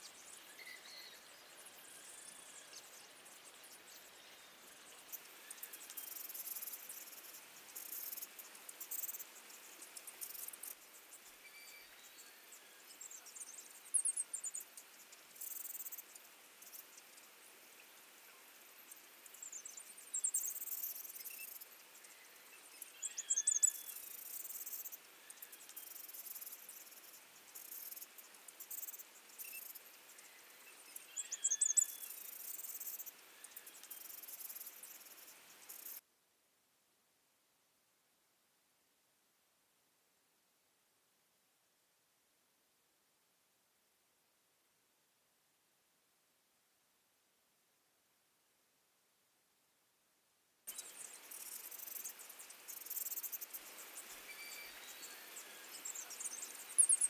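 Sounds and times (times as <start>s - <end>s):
insects chirping and trilling: 0.0s - 36.0s, 50.7s - 57.0s
faint steady hiss: 0.0s - 57.0s.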